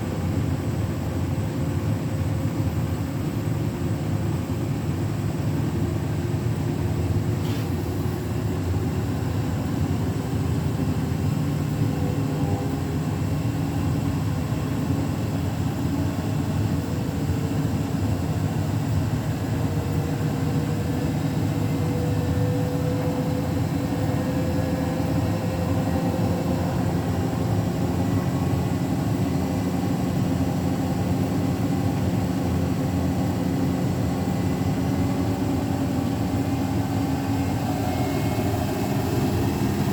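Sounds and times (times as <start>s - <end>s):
washing machine spinning: 19.2s - 39.9s.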